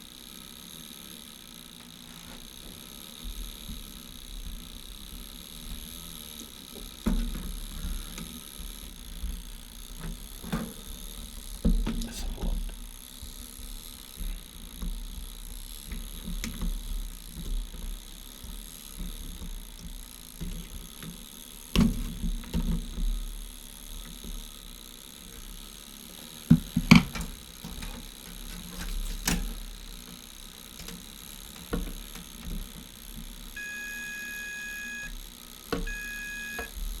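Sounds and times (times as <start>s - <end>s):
knocks and clicks on a workbench: 26.5s - 27.8s
faint high hum: 33.6s - 35.2s, 35.8s - 36.9s.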